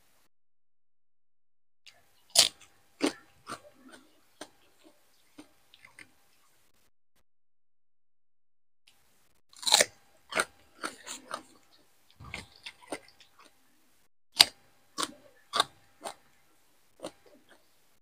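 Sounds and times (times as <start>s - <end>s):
person chewing wet clicks: 1.9s - 6.1s, 9.6s - 13.6s, 14.4s - 16.4s, 17.0s - 17.7s.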